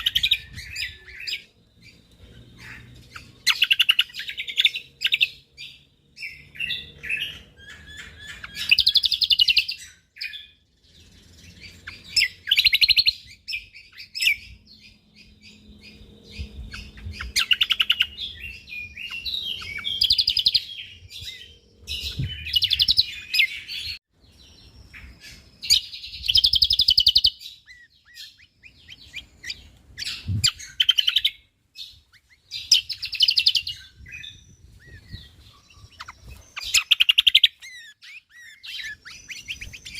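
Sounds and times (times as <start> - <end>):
bird chattering trills: 0.0 - 10.0, 32.1 - 39.9
soft bird chirps: 0.0 - 39.9.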